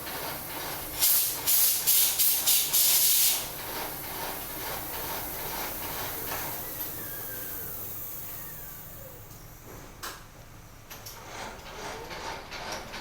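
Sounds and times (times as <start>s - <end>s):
short hissing blasts of spray: 1.0s - 3.6s.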